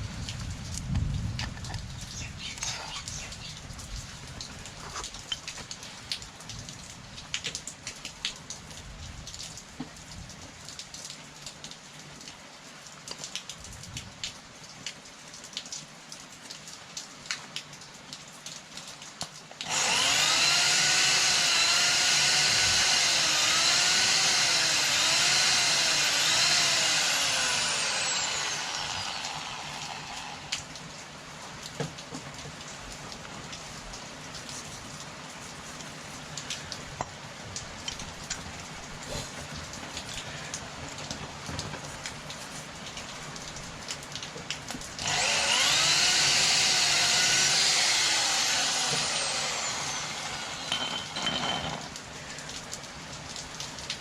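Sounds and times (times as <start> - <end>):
high-speed power tool whining: 19.6 - 30.7, 45.0 - 51.8.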